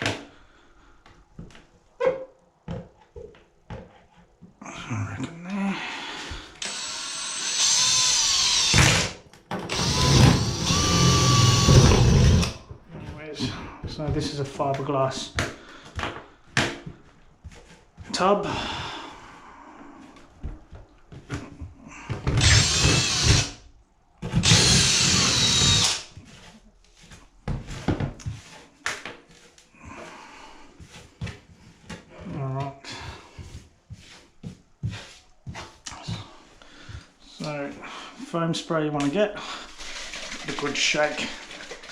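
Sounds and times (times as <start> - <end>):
power drill boring fiberglass: 6.6 - 9.1, 9.7 - 12.6, 22.4 - 23.6, 24.4 - 26.1, 39.6 - 41.9.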